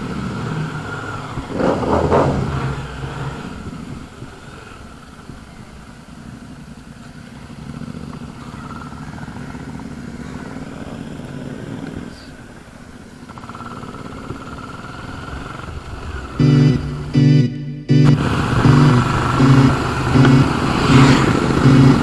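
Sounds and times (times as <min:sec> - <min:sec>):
motorcycle engine running: 0:12.5 - 0:22.0.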